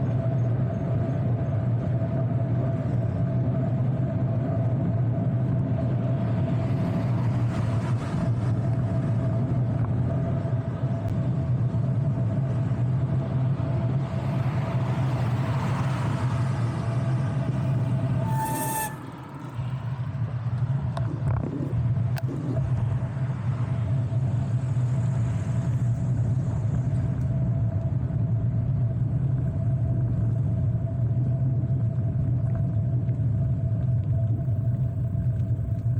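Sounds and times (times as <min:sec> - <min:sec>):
road and wind noise: 0:00.0 - 0:35.9
brief high squeal: 0:17.5 - 0:19.8.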